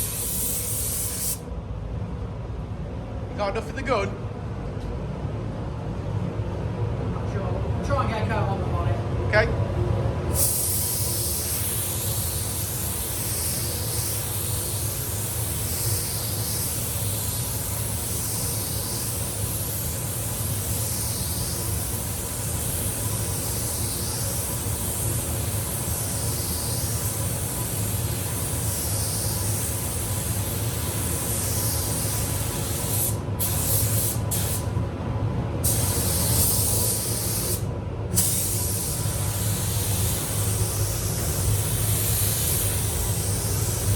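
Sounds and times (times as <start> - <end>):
spray gun hissing: 0.0 - 1.4, 10.3 - 34.7, 35.6 - 37.6, 38.2 - 43.9
low steady hum: 0.0 - 43.9.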